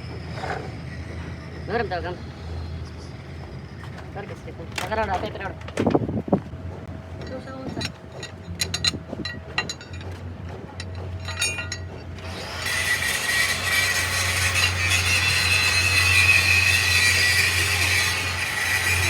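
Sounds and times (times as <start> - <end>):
power tool whining: 10.8 - 19.0.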